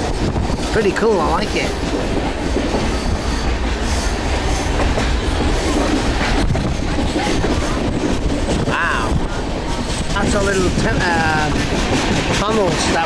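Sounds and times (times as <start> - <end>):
train carriage rumble and rattle: 0.0 - 13.0.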